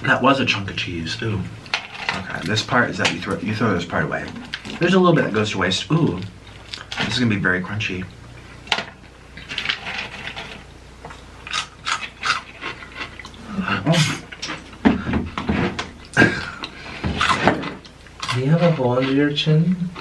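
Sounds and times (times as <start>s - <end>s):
crunching and chewing chips: 4.0s - 7.2s, 11.4s - 14.8s, 16.0s - 19.2s.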